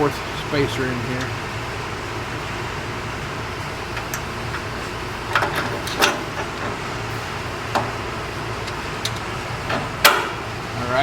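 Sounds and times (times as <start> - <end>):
steady hum: 0.0 - 11.0
metal hardware clicks and knocks: 5.3 - 6.8.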